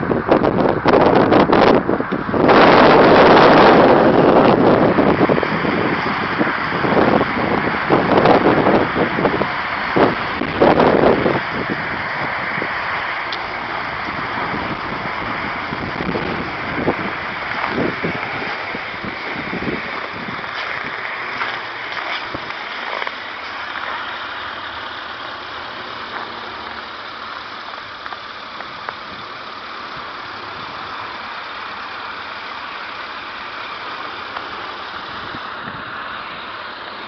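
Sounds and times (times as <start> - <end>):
strong wind rushing: 0.0 - 22.7
wind buffeting microphone: 0.0 - 36.6.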